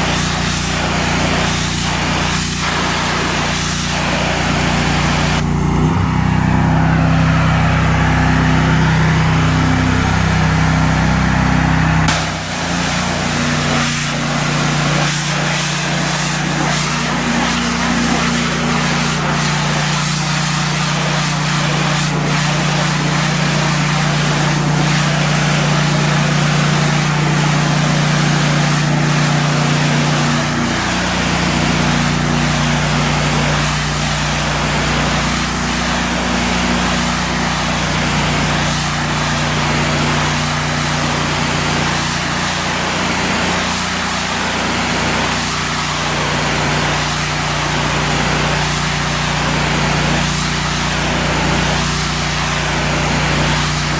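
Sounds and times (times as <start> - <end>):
water spray hissing: 0.0 - 37.1
pressure washer engine: 0.0 - 53.9.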